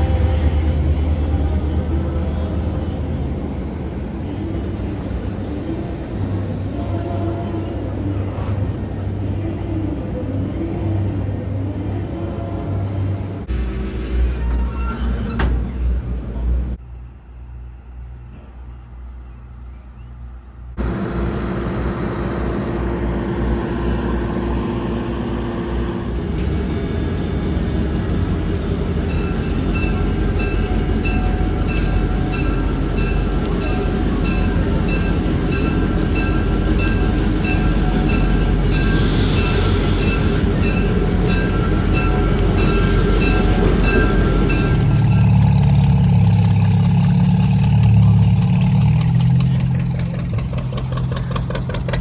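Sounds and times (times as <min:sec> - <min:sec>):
diesel locomotive engine running: 0:00.0 - 0:19.2, 0:20.7 - 0:52.0
locomotive bell ringing: 0:20.8 - 0:50.4.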